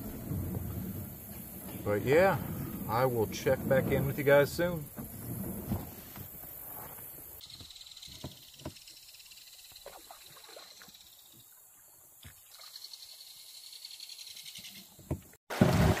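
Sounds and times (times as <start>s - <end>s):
river hiss: 0.0s - 5.0s.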